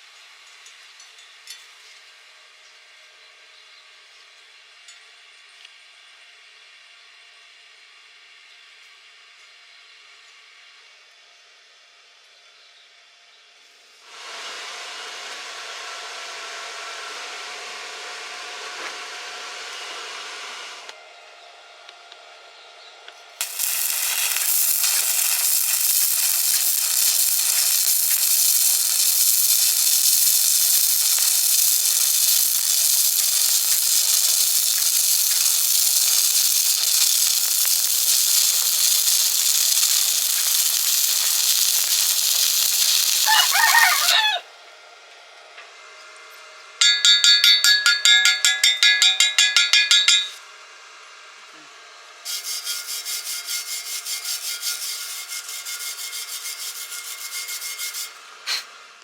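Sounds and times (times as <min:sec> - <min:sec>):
rhythmic scraping strokes: 0:23.4 - 0:44.2, 0:52.3 - 0:58.6
welding arc crackling hiss: 0:23.4 - 0:44.4, 0:52.3 - 0:58.8.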